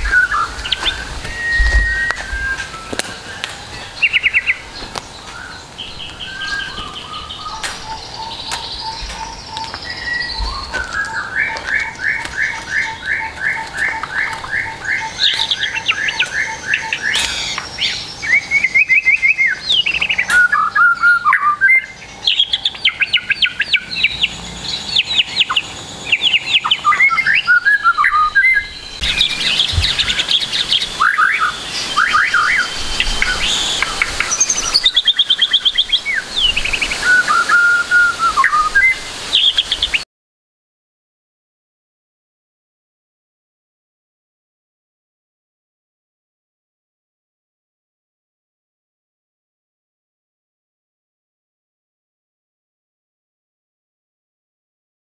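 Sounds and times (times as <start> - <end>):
bird singing varied song: 0.0 - 40.0.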